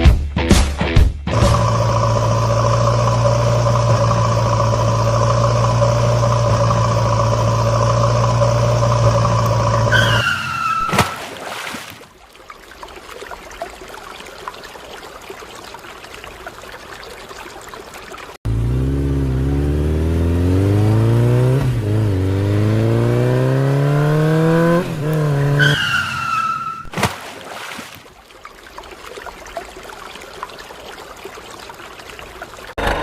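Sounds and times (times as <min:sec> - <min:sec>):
loud engine-like hum: 0:01.3 - 0:10.3, 0:18.5 - 0:25.6.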